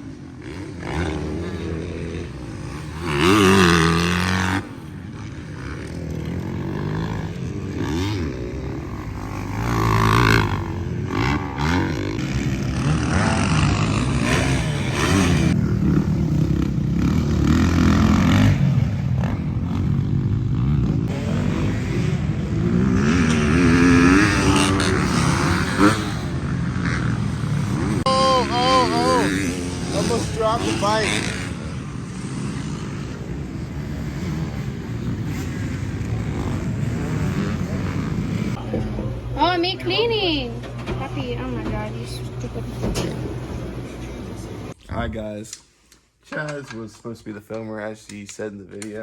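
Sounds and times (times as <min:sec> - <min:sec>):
pit bike engines revving: 0:00.0 - 0:45.2.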